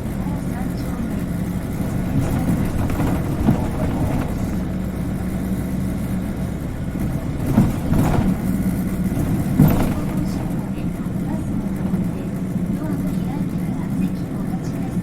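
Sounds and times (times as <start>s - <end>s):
bus engine humming: 0.0s - 15.0s
short knocks and rattles: 1.5s - 12.5s.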